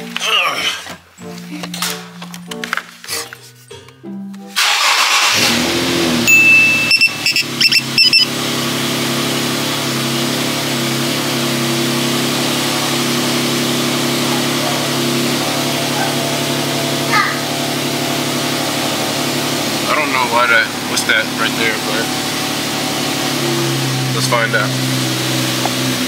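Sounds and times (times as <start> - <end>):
car engine starting and idling: 4.6 - 16.0
short high beeps: 6.3 - 8.3.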